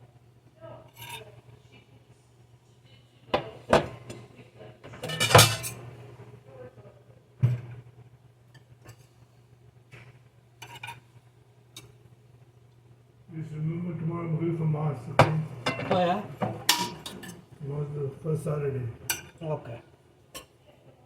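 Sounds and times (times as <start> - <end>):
steady low hum: 0.0 - 21.0
dishes and utensils clattering: 4.9 - 5.8, 10.6 - 11.0, 15.2 - 17.5, 19.1 - 19.4.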